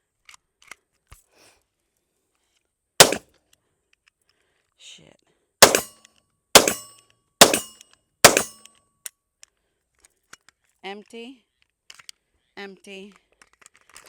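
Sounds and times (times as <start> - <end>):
pistol shots: 3.0 - 3.2, 5.6 - 5.9, 6.6 - 8.6.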